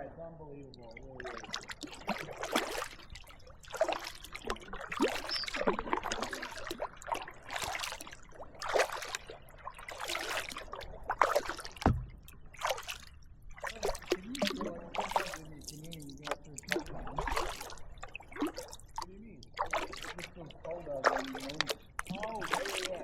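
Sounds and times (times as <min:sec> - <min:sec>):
water dripping: 0:00.7 - 0:23.0
kayak paddle splashing: 0:00.9 - 0:23.0
dull knock: 0:11.8 - 0:12.1.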